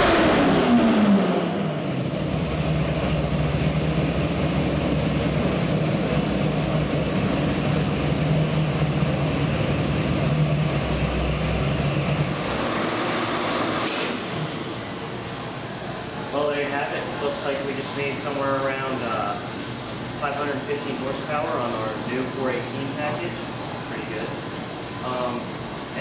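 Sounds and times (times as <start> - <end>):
engine idling: 0.0 - 13.3.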